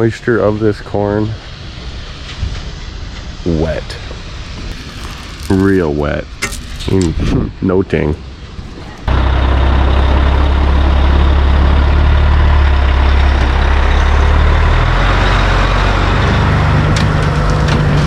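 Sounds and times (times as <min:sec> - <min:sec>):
diesel truck engine running: 0:08.2 - 0:18.0.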